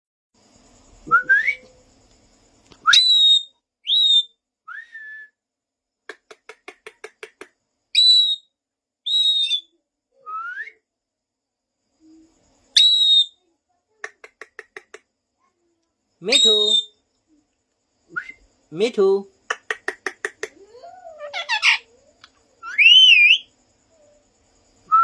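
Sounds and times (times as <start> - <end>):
parrot whistling: 2.9 - 5.1, 8.0 - 8.5, 9.1 - 10.8, 12.8 - 13.4, 16.3 - 16.9, 22.6 - 23.5.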